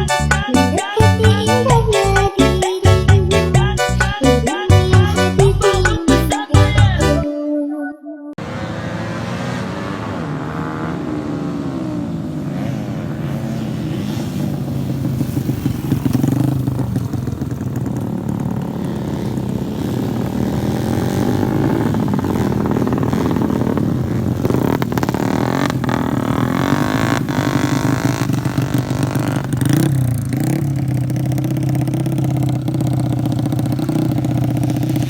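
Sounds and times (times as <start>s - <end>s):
motorcycle engines revving: 8.4s - 35.0s.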